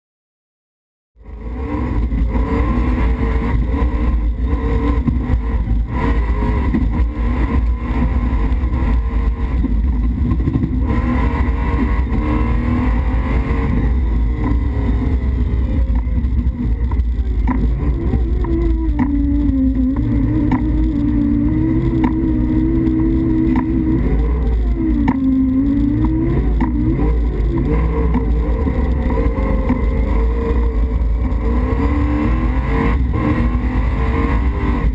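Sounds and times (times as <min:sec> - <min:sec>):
car engine accelerating: 0:01.2 - 0:34.9
car knocks and rattles: 0:15.9 - 0:24.0, 0:24.9 - 0:30.6.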